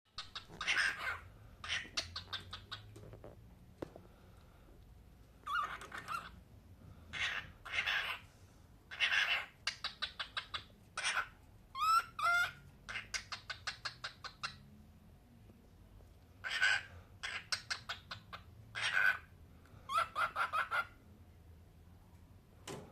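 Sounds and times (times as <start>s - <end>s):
cockatiel chirps: 0.1s - 3.0s, 5.4s - 6.4s, 7.1s - 8.2s, 8.9s - 14.6s, 16.4s - 19.3s, 19.9s - 21.0s
cockatiel screeching: 0.2s - 2.8s, 5.4s - 6.3s, 7.1s - 8.2s, 8.9s - 14.2s, 16.4s - 19.3s, 19.9s - 21.0s.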